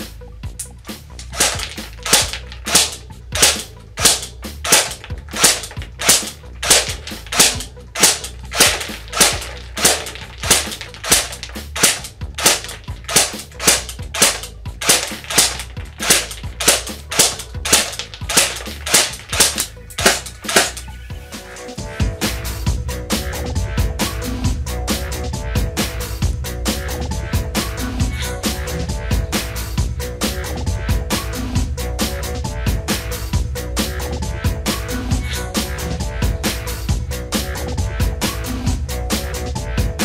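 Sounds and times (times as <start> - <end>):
airsoft rifle shots: 1.2 - 20.8.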